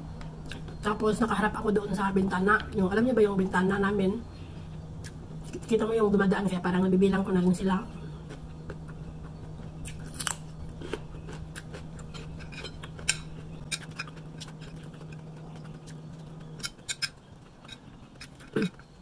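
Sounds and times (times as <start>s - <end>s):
steady low hum: 0.0s - 19.0s
crunching of cucumber being chewed: 8.1s - 19.0s
cutlery scraping on plate: 12.1s - 14.8s.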